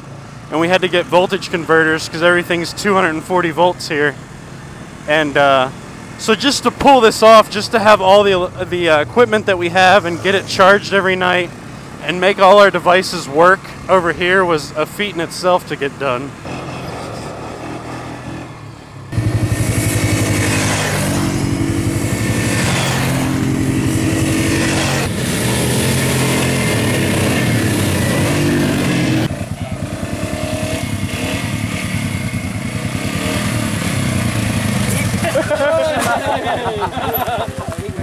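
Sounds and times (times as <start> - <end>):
quad bike engine revving: 16.3 - 38.0.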